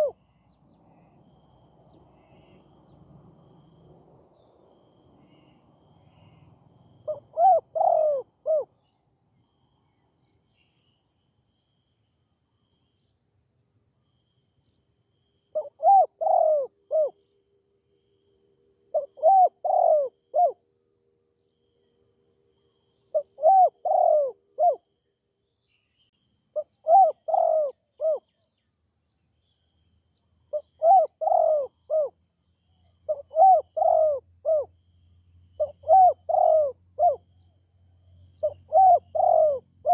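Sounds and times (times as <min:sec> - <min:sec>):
dove cooing: 0:00.0 - 0:00.2, 0:07.0 - 0:08.7, 0:15.6 - 0:17.2, 0:18.9 - 0:20.6, 0:23.1 - 0:24.9, 0:26.6 - 0:28.3, 0:30.5 - 0:32.2, 0:33.1 - 0:34.7, 0:35.6 - 0:37.3, 0:38.4 - 0:39.9.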